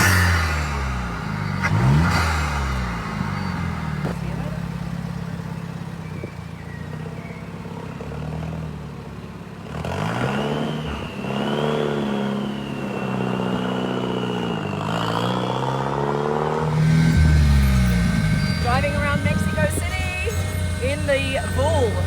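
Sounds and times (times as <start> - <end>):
car engine revving: 0.0 - 5.6, 9.6 - 22.0
thin high whine: 16.6 - 22.0.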